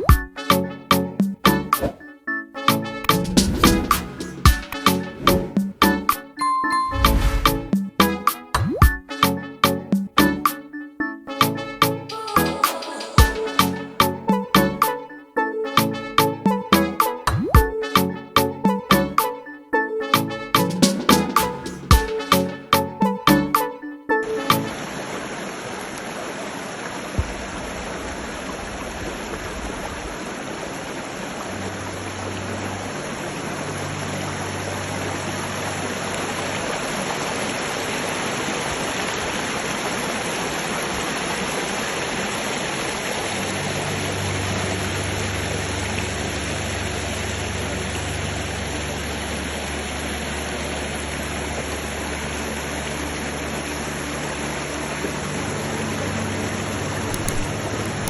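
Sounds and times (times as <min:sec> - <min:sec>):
mountain stream rushing: 0:06.8 - 0:07.8, 0:24.3 - 0:58.0
short click: 0:57.0 - 0:57.5.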